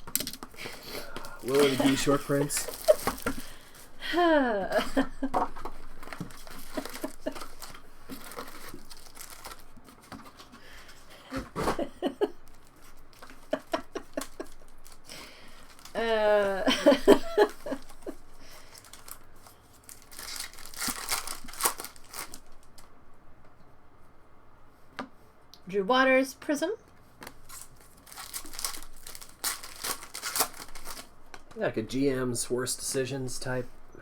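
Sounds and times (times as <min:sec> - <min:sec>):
cards shuffling: 0:00.0 - 0:03.9, 0:05.4 - 0:10.6
foil wrappers crinkling and tearing: 0:00.0 - 0:04.0, 0:04.8 - 0:22.9, 0:27.2 - 0:31.6.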